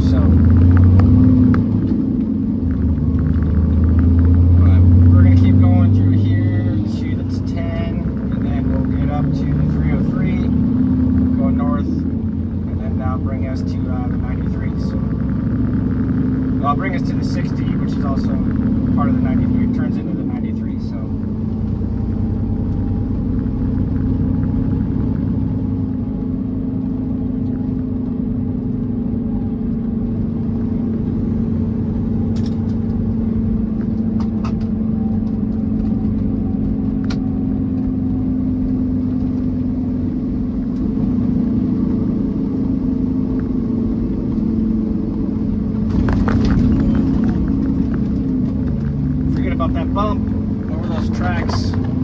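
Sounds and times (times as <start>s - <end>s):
diesel engine drone: 0.0s - 52.0s
road noise: 0.0s - 52.0s
truck cab rattling and jolting: 45.5s - 52.0s.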